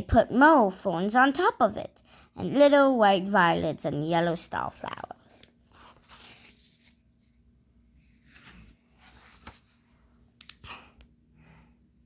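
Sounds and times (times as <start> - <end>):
book being handled: 5.4 - 10.5.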